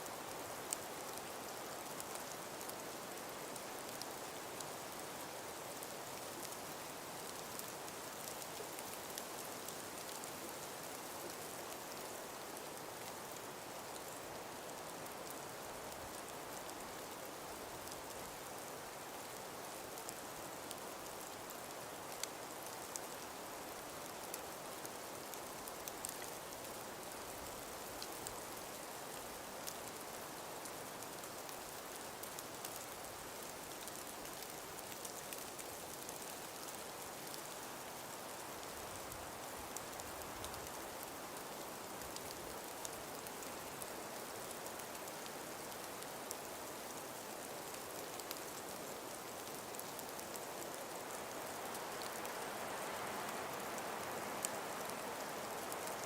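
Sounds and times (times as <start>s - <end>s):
light ticks and patters: 0.0s - 56.0s
wind hiss through forest: 0.0s - 56.0s.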